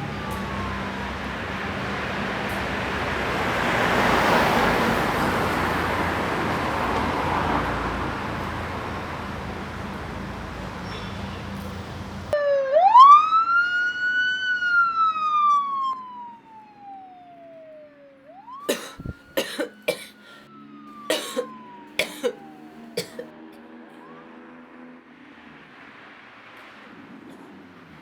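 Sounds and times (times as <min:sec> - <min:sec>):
emergency siren wailing: 0:00.0 - 0:09.6, 0:12.3 - 0:25.0.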